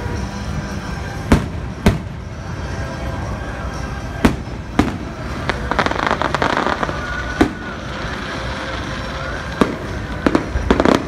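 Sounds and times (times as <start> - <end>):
fireworks crackling: 0.0 - 11.0
fireworks bangs: 4.1 - 11.0.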